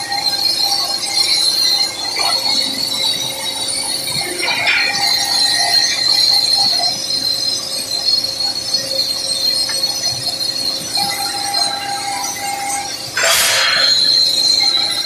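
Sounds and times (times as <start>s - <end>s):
metallic ring of drill rods: 12.6s - 15.0s.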